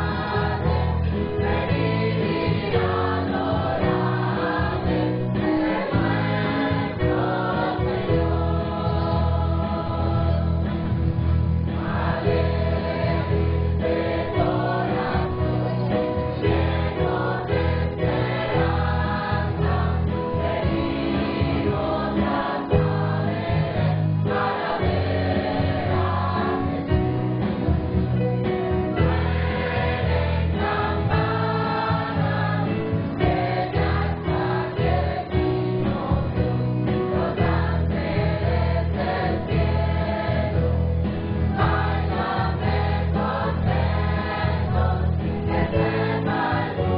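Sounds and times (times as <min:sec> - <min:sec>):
choir singing: 0:00.0 - 0:11.0, 0:11.6 - 0:27.7, 0:28.5 - 0:46.9
deep steady accompaniment: 0:00.0 - 0:46.9.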